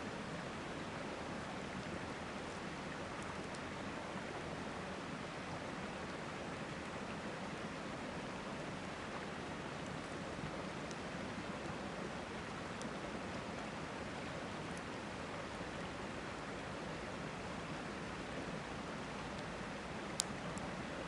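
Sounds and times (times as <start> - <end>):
campfire popping: 20.1 - 20.7.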